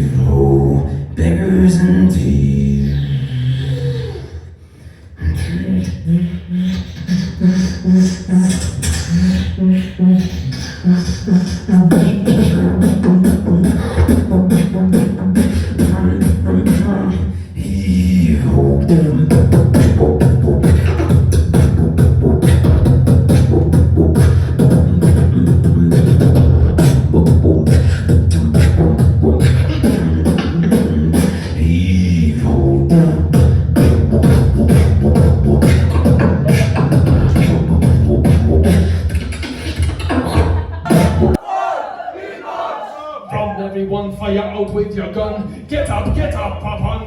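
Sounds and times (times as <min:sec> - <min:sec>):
person beatboxing: 0:00.0 - 0:04.5, 0:05.1 - 0:41.4, 0:44.1 - 0:47.0
heavy bass line: 0:10.9 - 0:41.4.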